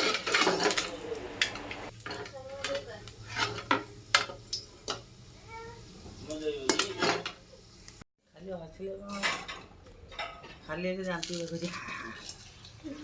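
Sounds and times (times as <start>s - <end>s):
metal utensils clinking on dishes: 0.0s - 5.0s, 6.3s - 7.4s, 9.1s - 11.8s.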